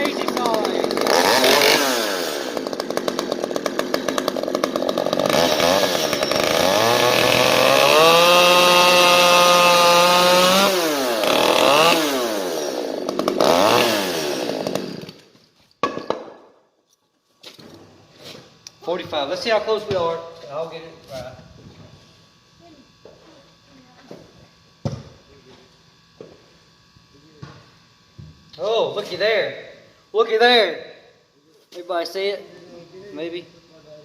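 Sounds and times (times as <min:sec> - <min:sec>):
chainsaw revving: 0:00.0 - 0:15.3.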